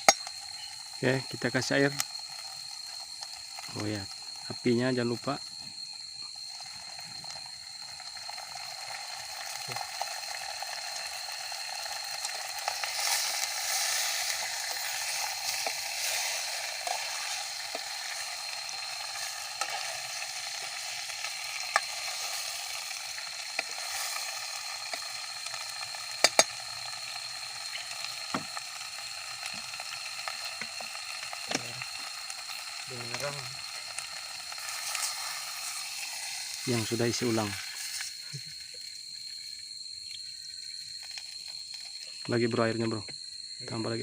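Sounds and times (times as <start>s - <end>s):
food sizzling over a fire: 0.0s - 44.0s.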